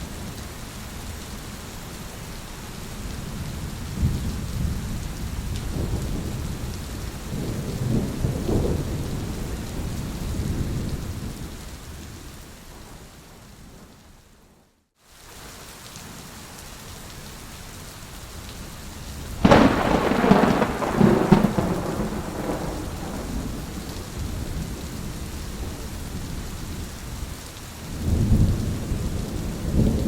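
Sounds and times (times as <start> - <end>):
steady rain: 0.0 - 30.0
thunder rolling: 19.4 - 25.1.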